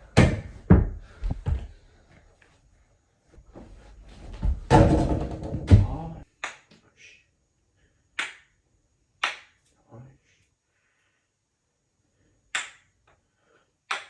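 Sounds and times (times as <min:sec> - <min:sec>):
heavy knocks: 0:04.4 - 0:06.2.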